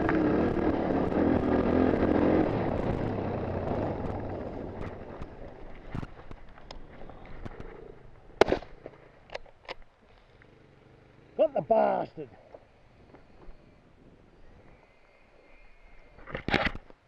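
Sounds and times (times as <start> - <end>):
dirt bike engine running: 0.0 - 8.4.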